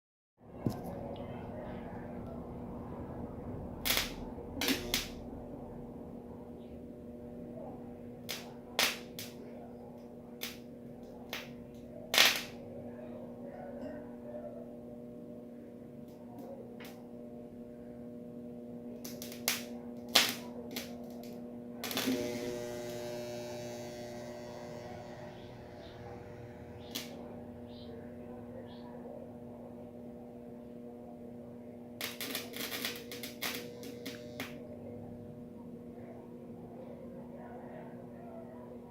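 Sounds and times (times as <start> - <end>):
electrical arcing snaps: 3.8 - 5.3, 8.2 - 12.8, 18.9 - 28.0, 31.9 - 34.7
transformer humming: 15.8 - 30.9.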